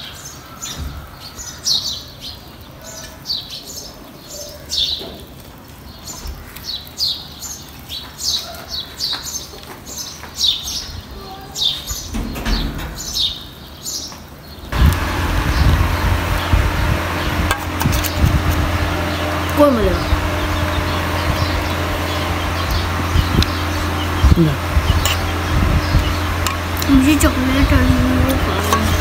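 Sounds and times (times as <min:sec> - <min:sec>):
small bird chirping: 0:14.8 - 0:29.0.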